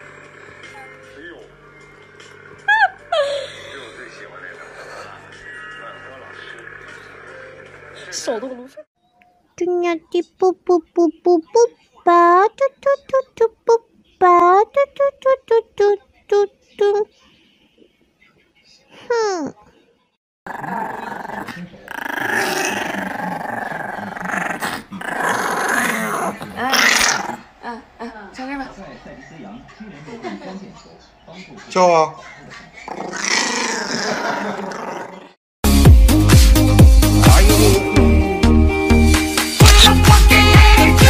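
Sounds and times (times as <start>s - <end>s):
dog growling: 20.5s - 27.6s, 32.4s - 35.4s
electronic music with sliding bass: 35.7s - 41.0s.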